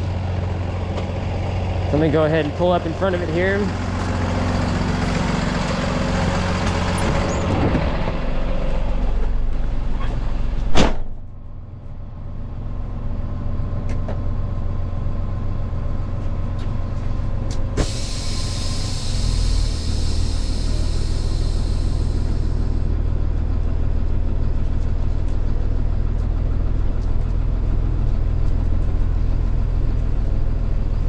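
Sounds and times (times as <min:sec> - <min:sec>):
tow truck engine running: 0:00.0 - 0:10.7, 0:11.3 - 0:31.0
sharp bang: 0:10.7 - 0:11.3.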